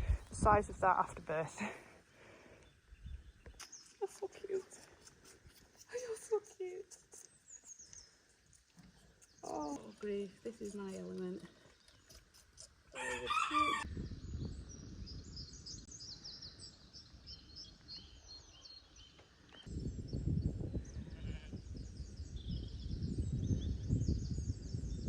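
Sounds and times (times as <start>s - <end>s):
birds chirping: 0.0s - 24.8s
farm animal call: 12.6s - 13.9s.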